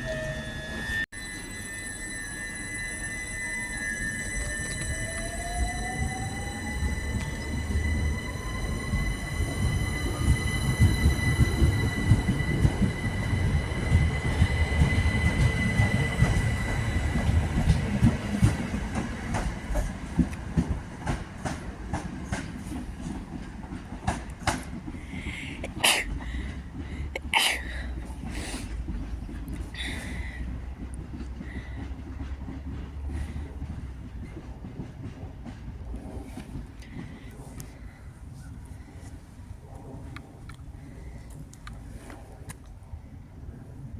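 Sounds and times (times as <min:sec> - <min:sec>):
train motor whine: 0:00.0 - 0:20.0
low train rumble: 0:00.0 - 0:43.9
wheels clicking over rail joints: 0:04.5 - 0:37.9.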